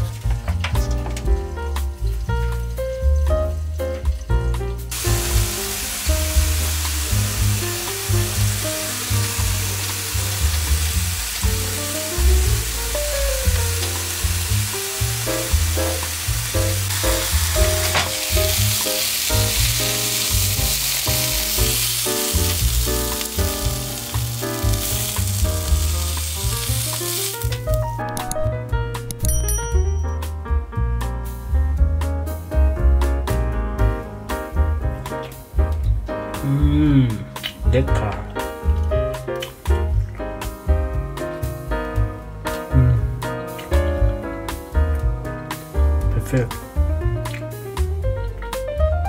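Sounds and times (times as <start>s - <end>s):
background music with bass line: 0.0s - 49.0s
chicken sizzling in hot oil: 4.9s - 27.7s.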